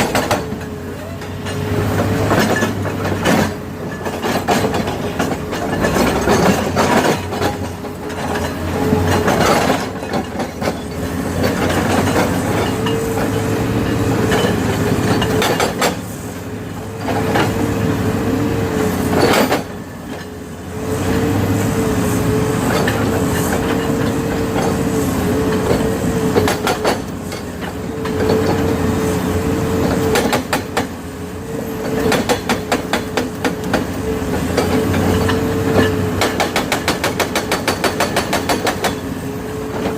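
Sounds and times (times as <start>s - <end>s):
heavy machinery engine whining: 0.0s - 39.9s
clanking and knocks: 1.4s - 16.0s.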